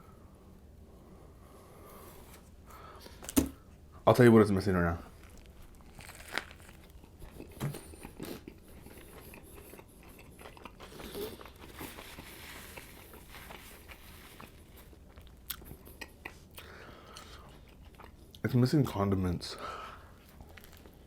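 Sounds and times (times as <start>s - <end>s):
close chewing of sandwich: 5.0s - 18.5s, 19.6s - 21.0s.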